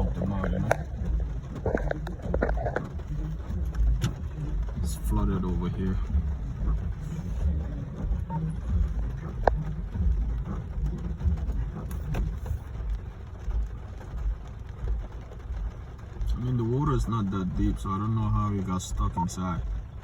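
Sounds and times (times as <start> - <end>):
rain hissing: 0.0 - 20.0
vehicle rumble: 0.0 - 20.0
faint clicks: 0.1 - 4.8.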